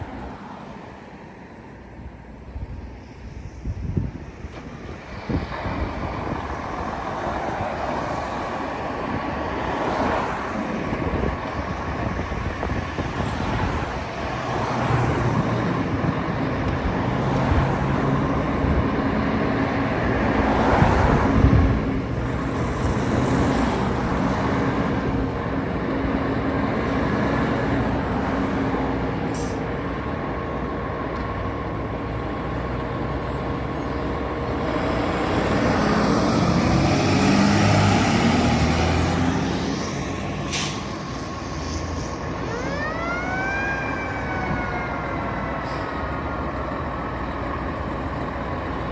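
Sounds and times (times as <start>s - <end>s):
fire engines driving past: 0.0s - 48.9s
traffic noise: 0.0s - 48.9s.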